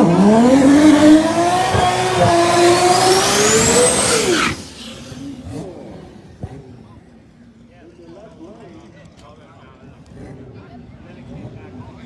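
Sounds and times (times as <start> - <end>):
high rising whistle: 0.0 - 5.3
race car engine at full throttle: 0.0 - 7.5, 9.9 - 12.0.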